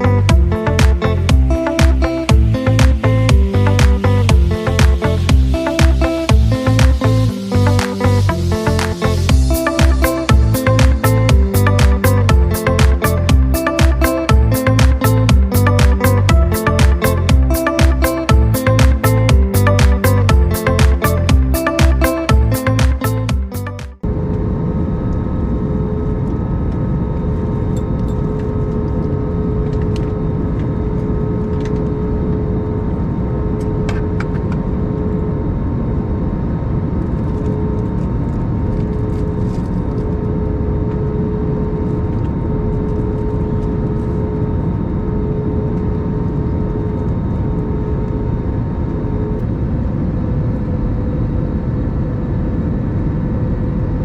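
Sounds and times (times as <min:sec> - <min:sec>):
steady tones: 0:00.0 - 0:24.2
airplane cabin air and engine hum: 0:24.0 - 0:54.0.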